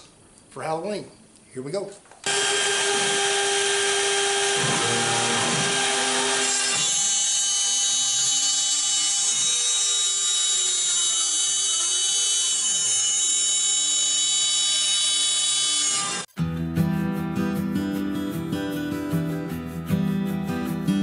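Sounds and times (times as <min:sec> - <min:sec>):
router spindle whine cutting wood: 0:02.2 - 0:16.3.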